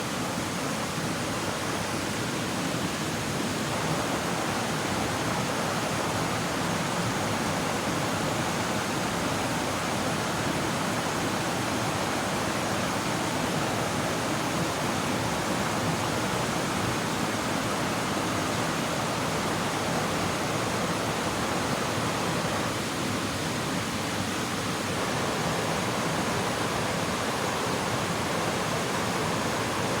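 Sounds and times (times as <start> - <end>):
river rushing over rocks: 0.0 - 30.0.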